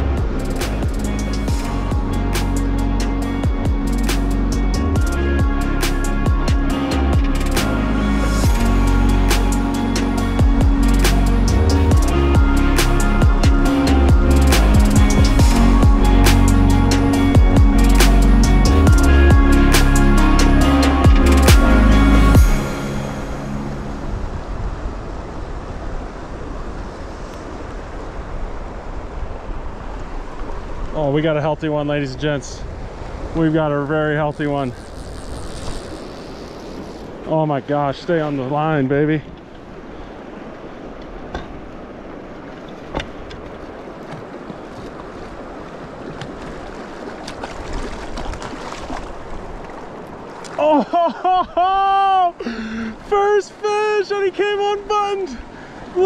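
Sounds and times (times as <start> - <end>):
music track: 0.0 - 24.7
flowing river water: 0.0 - 56.0.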